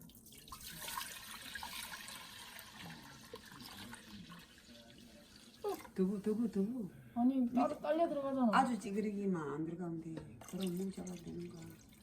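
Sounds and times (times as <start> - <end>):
water pouring into a bowl: 0.0 - 6.0, 10.4 - 12.0.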